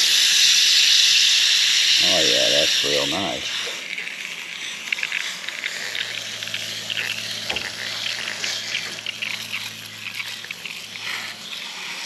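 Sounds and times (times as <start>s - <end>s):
spray bottle spraying water: 0.0s - 4.4s.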